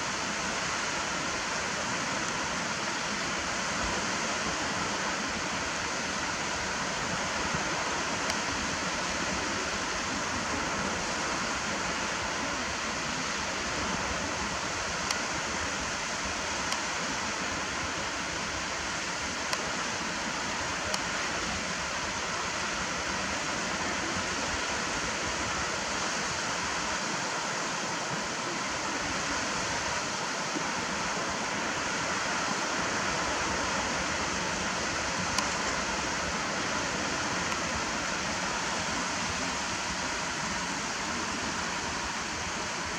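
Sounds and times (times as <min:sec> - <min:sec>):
waves rushing on shore: 0:00.0 - 0:42.9.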